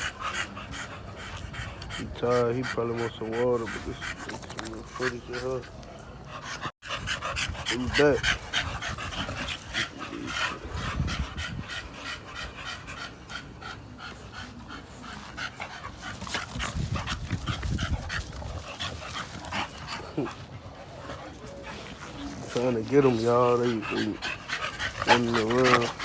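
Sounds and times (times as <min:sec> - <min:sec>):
dogs panting: 0:00.0 - 0:26.0
dogs scuffling: 0:15.8 - 0:26.0.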